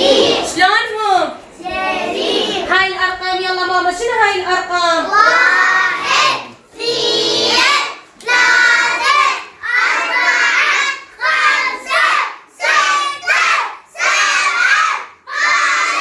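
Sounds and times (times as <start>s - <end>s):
children singing: 0.0s - 0.5s, 1.6s - 2.7s, 5.1s - 16.0s.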